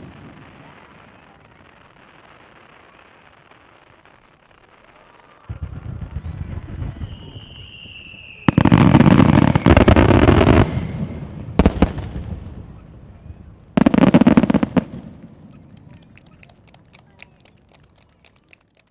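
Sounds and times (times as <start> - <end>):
firework whistling: 0.0 - 12.9
fireworks bangs and crackling: 0.0 - 18.9.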